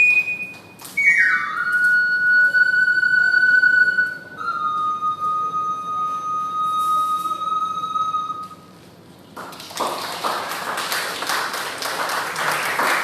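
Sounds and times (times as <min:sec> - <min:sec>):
ocarina long note: 0:00.0 - 0:08.7
audience applause: 0:09.4 - 0:13.0.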